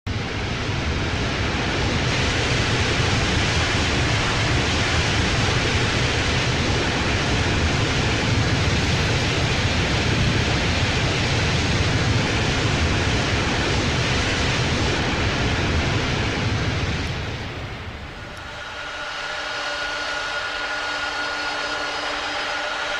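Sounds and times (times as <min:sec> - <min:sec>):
airliner landing rushing noise: 0:00.1 - 0:22.9.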